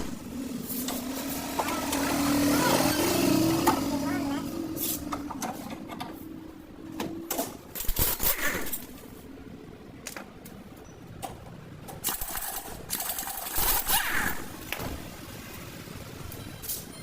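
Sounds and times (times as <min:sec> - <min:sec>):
metallic clicking and clanking: 0:06.9 - 0:09.1.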